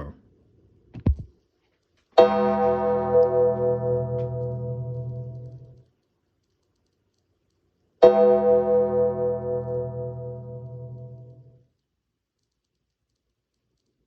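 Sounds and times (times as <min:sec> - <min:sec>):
deep bell tolling: 0:02.2 - 0:05.7, 0:08.0 - 0:11.4.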